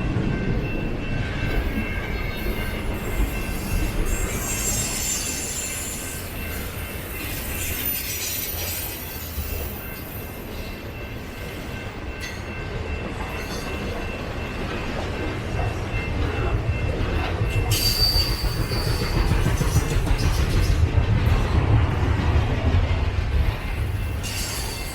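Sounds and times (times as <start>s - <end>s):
train wheels rumbling on rail: 0.0s - 24.9s
high wheel squeals: 2.6s - 10.3s, 17.7s - 19.2s.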